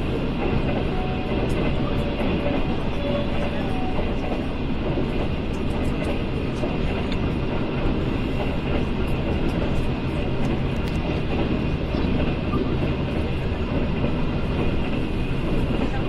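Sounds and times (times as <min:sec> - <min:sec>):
train car body rattling: 0:00.0 - 0:16.0
train wheels on rails: 0:00.0 - 0:16.0.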